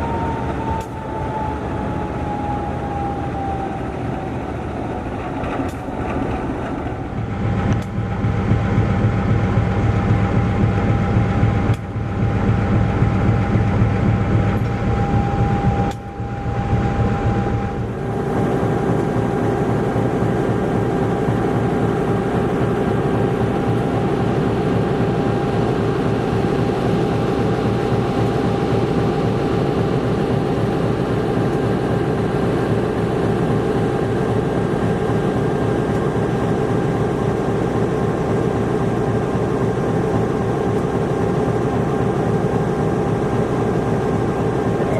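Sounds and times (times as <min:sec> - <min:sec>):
diesel locomotive running: 0:00.0 - 0:44.9
steady tone: 0:07.0 - 0:21.4.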